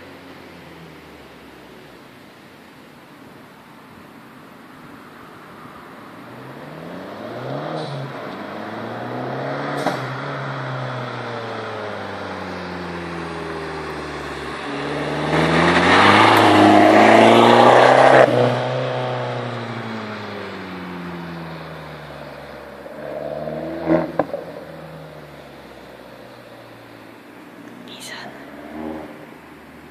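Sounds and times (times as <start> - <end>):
car engine revving: 6.3 - 29.9.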